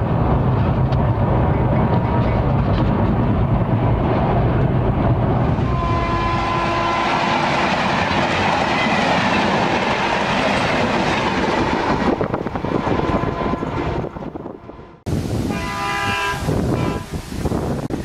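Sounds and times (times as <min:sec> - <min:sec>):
wheels clacking over rail joints: 0:00.0 - 0:14.4
passenger train rumbling past: 0:00.0 - 0:18.0.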